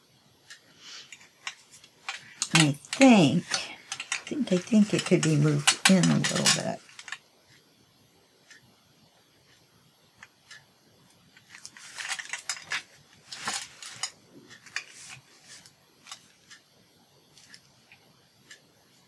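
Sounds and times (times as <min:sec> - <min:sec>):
paper rustling: 0:11.5 - 0:15.7.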